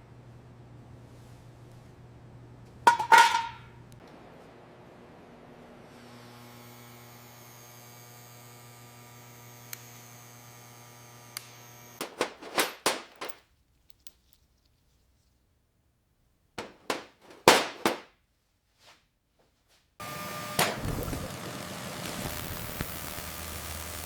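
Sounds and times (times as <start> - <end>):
sharp knocks: 16.6 - 18.1.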